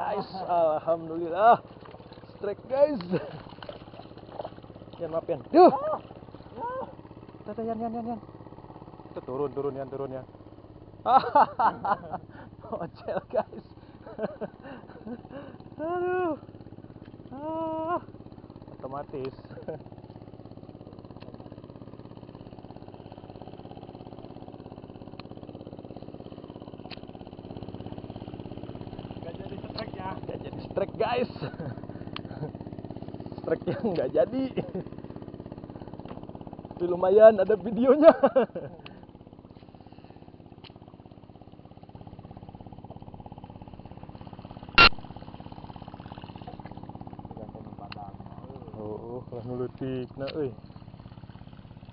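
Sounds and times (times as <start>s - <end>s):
small engine idling: 0.0s - 51.9s.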